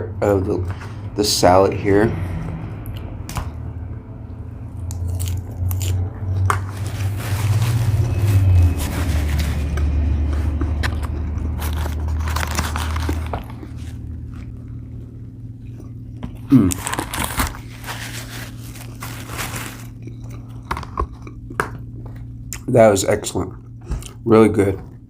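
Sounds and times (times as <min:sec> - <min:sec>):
steady low hum: 0:00.0 - 0:25.0
person chewing crunchy salad: 0:04.7 - 0:22.7, 0:23.5 - 0:25.0.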